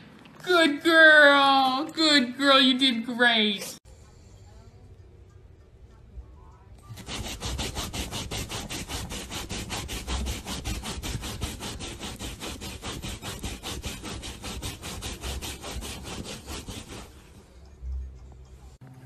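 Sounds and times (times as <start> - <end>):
dog scratching couch fabric: 6.9 - 17.4.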